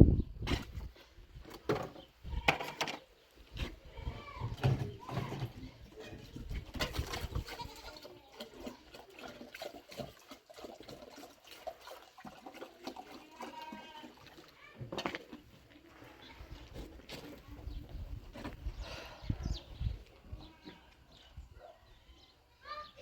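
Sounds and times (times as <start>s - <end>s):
livestock bleating: 7.4s - 8.1s, 13.2s - 14.2s, 20.3s - 21.0s.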